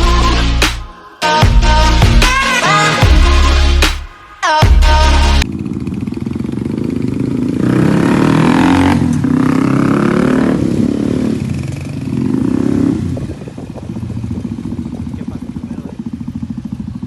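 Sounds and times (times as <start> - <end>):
motorcycle engine revving: 4.7 - 17.0.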